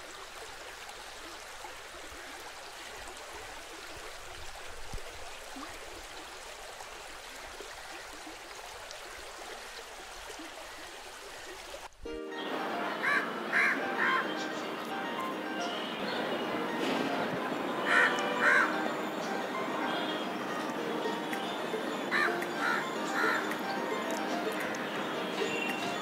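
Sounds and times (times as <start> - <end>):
stream water rushing and gurgling: 0.0 - 26.0
music: 12.1 - 26.0.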